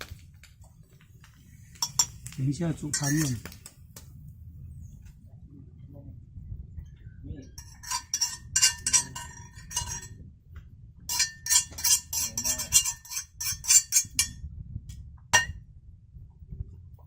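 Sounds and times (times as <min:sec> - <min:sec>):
utensil clinking against cookware: 0:01.8 - 0:03.6, 0:07.6 - 0:10.1, 0:11.1 - 0:14.4.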